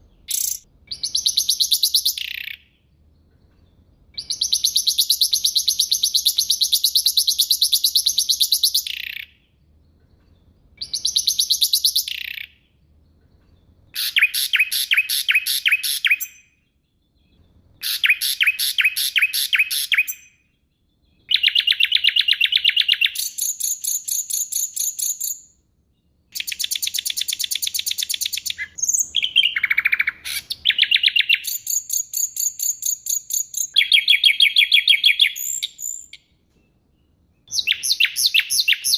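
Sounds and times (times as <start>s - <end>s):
songbird trilling: 0.0s - 2.7s, 4.2s - 9.4s, 10.8s - 12.6s, 14.0s - 16.4s, 26.4s - 36.2s, 37.5s - 38.9s.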